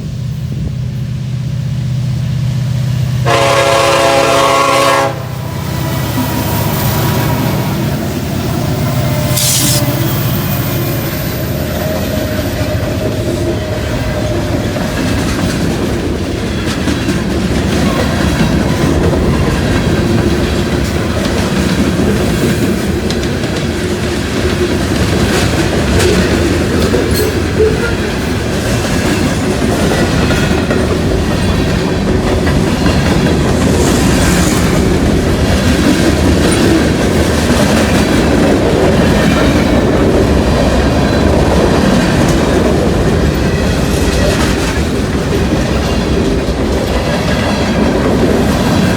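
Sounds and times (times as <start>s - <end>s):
train rumble: 0.0s - 48.9s
train wheels clicking over rails: 3.0s - 48.9s
brief high hiss: 9.2s - 10.4s.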